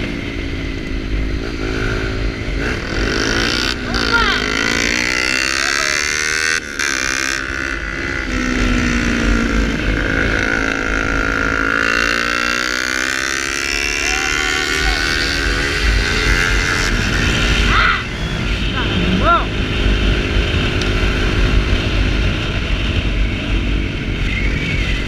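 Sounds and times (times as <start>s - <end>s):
motorcycle engine revving: 0.0s - 25.0s
wind rumble on microphone: 14.8s - 25.0s.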